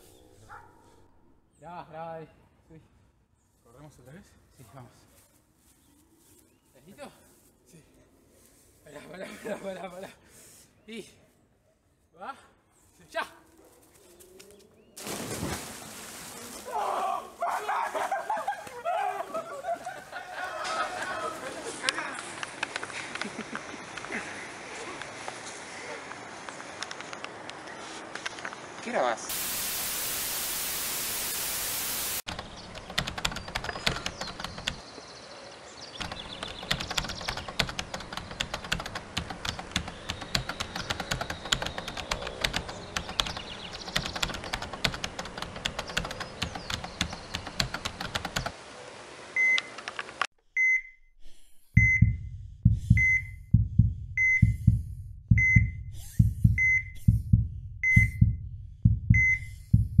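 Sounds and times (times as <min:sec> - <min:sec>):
crackling hiss with sharp clicks: 0:21.8 - 0:34.8, 0:43.9 - 0:50.3
tv static burst: 0:29.3 - 0:32.2
heart monitor beeping: 0:50.6 - 0:51.0, 0:51.8 - 1:00.0
heartbeat thump: 0:51.8 - 1:00.0.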